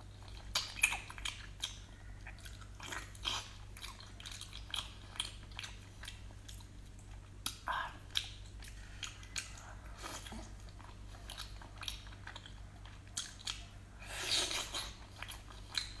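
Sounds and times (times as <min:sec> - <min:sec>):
close-miked chewing and biting: 0:00.0 - 0:16.0
low steady hum: 0:00.0 - 0:16.0.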